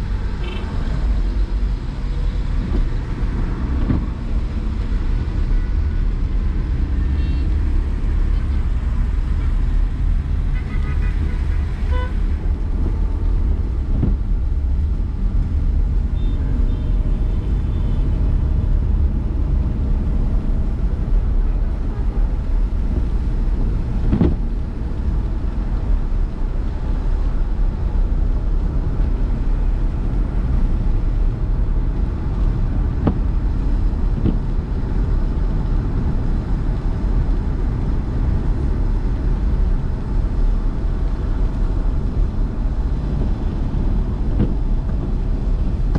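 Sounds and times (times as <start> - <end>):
car engine and road noise: 0.0 - 45.9.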